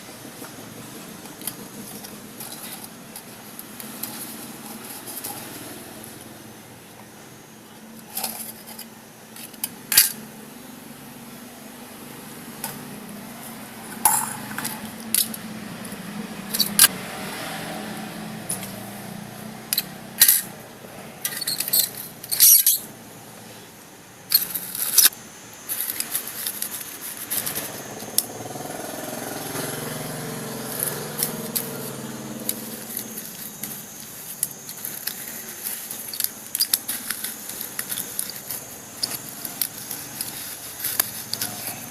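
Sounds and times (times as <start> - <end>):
metal parts and tools clinking: 1.3 - 6.2, 8.0 - 10.3, 13.8 - 16.9, 19.7 - 20.6, 21.2 - 22.9, 24.3 - 28.3, 30.6 - 41.9.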